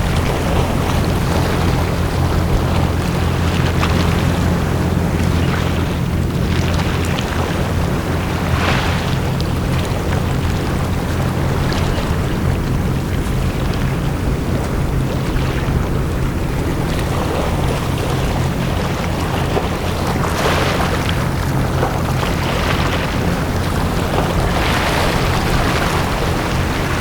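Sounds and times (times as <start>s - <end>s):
low mechanical hum: 0.0s - 27.0s
sea waves washing onto beach: 0.0s - 27.0s.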